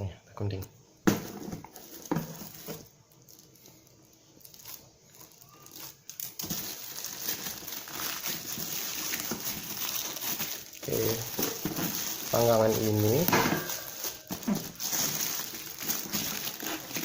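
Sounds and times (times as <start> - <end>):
packaging crinkling: 1.2 - 17.0.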